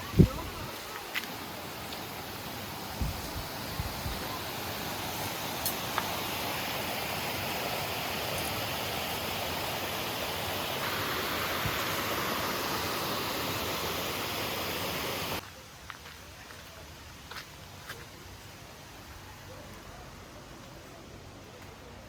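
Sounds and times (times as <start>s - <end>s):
stream rushing over rocks: 0.0s - 15.4s.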